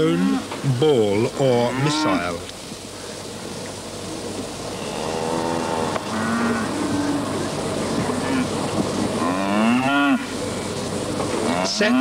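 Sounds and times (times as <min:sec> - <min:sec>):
steady background rumble: 0:00.4 - 0:12.0.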